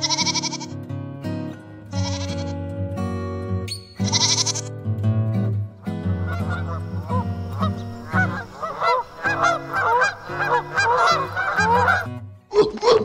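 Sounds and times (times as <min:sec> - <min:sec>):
background music with low notes: 0:00.0 - 0:13.0
goose honking: 0:05.8 - 0:13.0.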